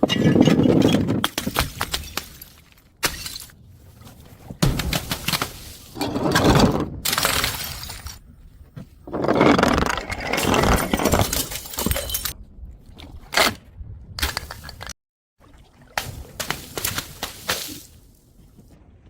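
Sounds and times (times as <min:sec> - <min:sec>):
glass breaking and crunching: 0:01.3 - 0:03.6, 0:07.1 - 0:08.2, 0:09.8 - 0:12.4.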